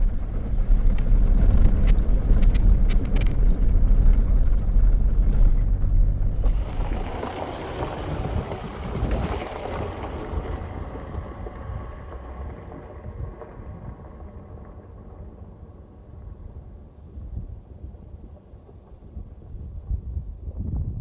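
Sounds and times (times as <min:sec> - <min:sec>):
vehicle splashing through water: 0:06.3 - 0:13.6.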